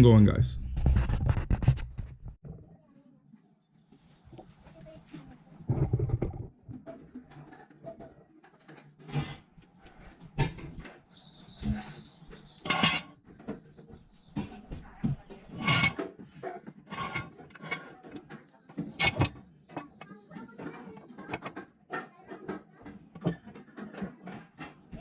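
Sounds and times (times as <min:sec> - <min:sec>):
tools knocking and clattering: 0:11.6 - 0:25.0.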